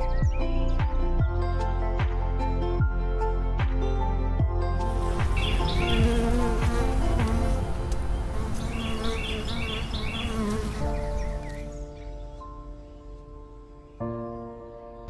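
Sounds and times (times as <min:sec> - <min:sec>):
soft background music: 0:00.0 - 0:15.0
insect buzzing: 0:04.8 - 0:11.8.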